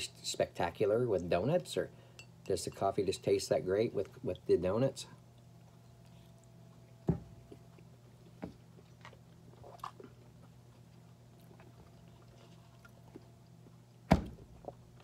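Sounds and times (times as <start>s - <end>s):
person chewing: 5.2s - 14.0s.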